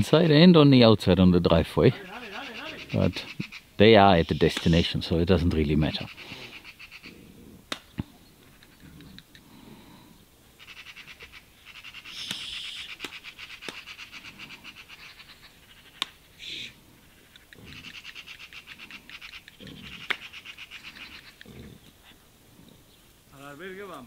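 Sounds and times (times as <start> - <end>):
bird chattering trill: 1.9 - 7.3, 10.6 - 21.6
sharp clicks: 4.3 - 4.9, 7.7 - 9.5, 12.1 - 14.0, 16.0 - 16.2, 17.3 - 21.5.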